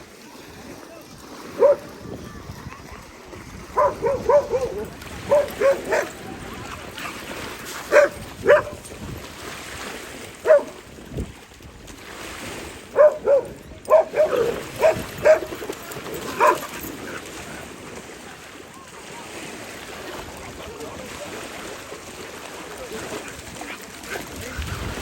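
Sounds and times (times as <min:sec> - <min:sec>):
dog barking: 0:01.6 - 0:01.9, 0:03.7 - 0:06.2, 0:07.9 - 0:08.8, 0:10.4 - 0:10.8, 0:12.9 - 0:15.6, 0:16.3 - 0:16.8.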